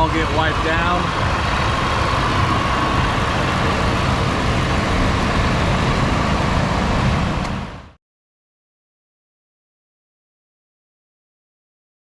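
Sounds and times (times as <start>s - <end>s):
truck engine idling: 0.0s - 8.0s.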